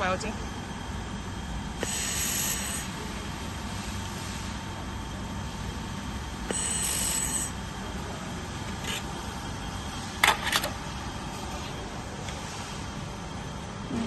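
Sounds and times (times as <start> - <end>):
machine hum: 0.0 - 14.0
high hiss of welding: 1.8 - 3.0, 6.5 - 7.6.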